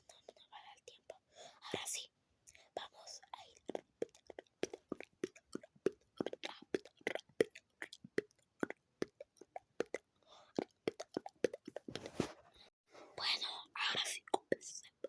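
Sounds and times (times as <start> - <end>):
breathy whisper: 0.0 - 3.8, 12.6 - 15.0.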